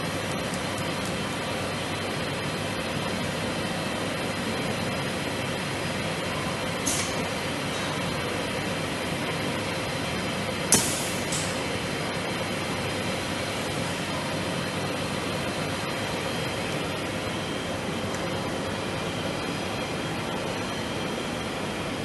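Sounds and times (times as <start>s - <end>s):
machinery humming: 0.0s - 22.0s
sharp mechanical clack: 10.7s - 11.6s.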